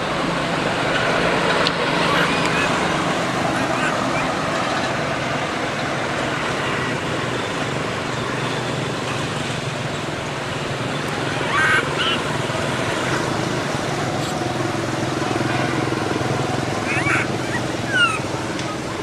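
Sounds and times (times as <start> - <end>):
distant traffic: 0.0 - 19.0
high-pitched animal call: 3.5 - 4.4, 11.4 - 12.3, 16.8 - 18.3.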